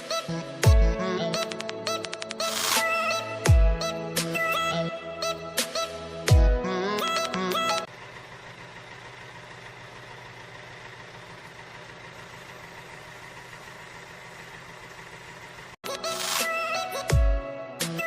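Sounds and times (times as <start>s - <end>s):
small motor humming: 7.9s - 15.8s.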